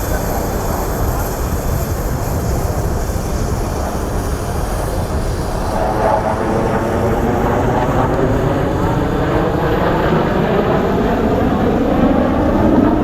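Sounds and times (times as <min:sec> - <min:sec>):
high-pitched jet whine: 0:00.0 - 0:13.0
jet engine rumble: 0:00.0 - 0:13.0.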